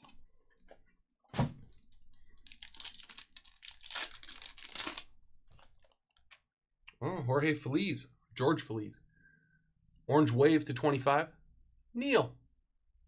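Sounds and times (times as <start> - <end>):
foil wrapper tearing and crinkling: 2.4 - 5.9.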